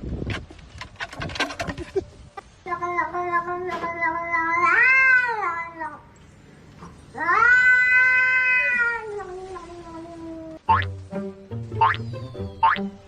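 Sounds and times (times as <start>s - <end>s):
cat meowing: 7.2s - 10.3s.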